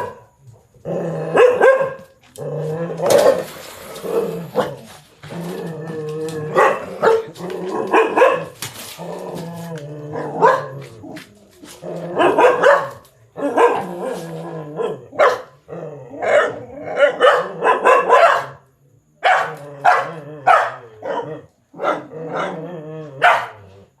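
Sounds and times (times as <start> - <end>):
dog barking: 0.0 - 0.3, 1.3 - 2.1, 6.5 - 8.6, 10.2 - 10.9, 12.2 - 13.9, 14.8 - 15.6, 16.2 - 18.6, 19.2 - 22.6, 23.2 - 23.7
dog growling: 0.7 - 12.6, 13.4 - 17.8, 19.6 - 24.0.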